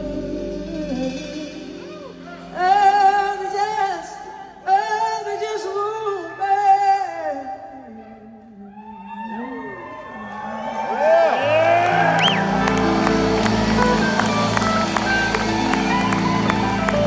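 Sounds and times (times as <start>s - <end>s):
lead guitar wavering high notes: 11.4s - 17.0s
blues-rock band playing: 11.7s - 17.0s.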